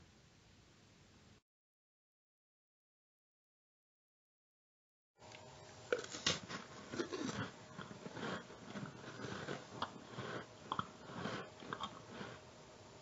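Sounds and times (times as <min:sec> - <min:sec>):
crunchy cookie being chewed: 0:05.9 - 0:12.5.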